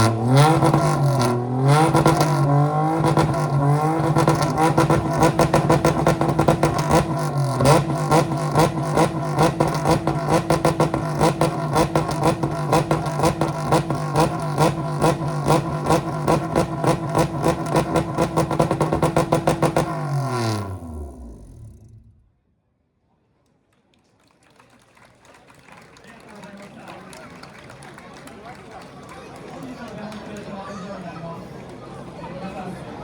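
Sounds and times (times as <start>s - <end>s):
car engine idling with clatter: 0.0s - 22.2s
engine switching off: 0.2s - 22.3s.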